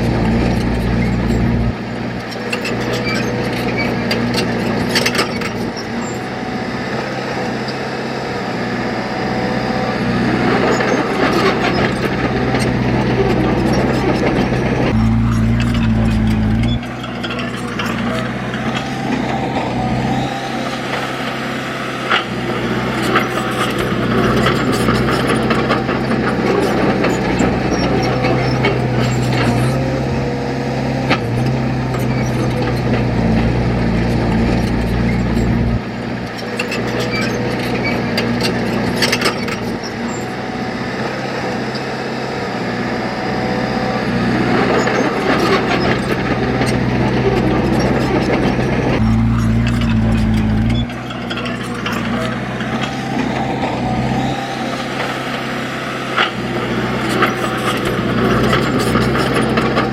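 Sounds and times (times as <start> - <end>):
heavy diesel engine under load: 0.0 - 59.9
machinery clanks and knocks: 10.3 - 40.2, 44.5 - 59.9.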